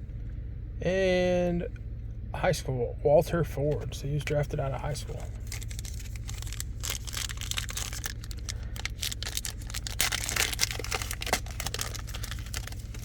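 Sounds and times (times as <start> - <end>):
foil wrapper crinkling and tearing: 5.3 - 13.0.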